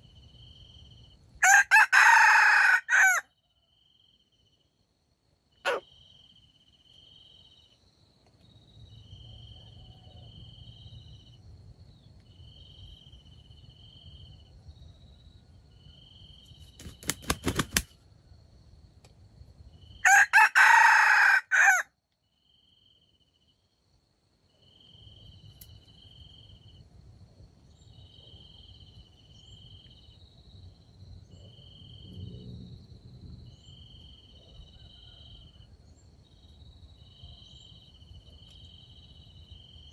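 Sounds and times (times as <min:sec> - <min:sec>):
insects chirping: 0:00.0 - 0:39.9
rooster crowing: 0:01.4 - 0:03.3, 0:20.0 - 0:21.9, 0:34.5 - 0:35.7.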